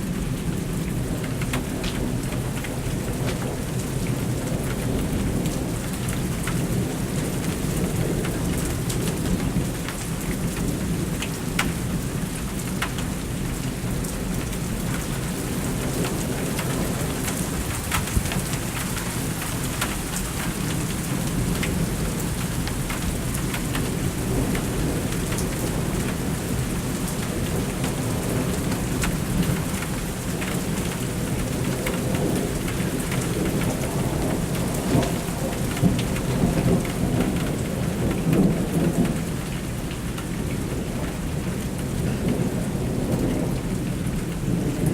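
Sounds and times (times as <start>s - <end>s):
heavy rain: 0.0s - 44.9s
rain drops ticking: 0.0s - 44.9s
thunder rumbling: 23.1s - 39.6s.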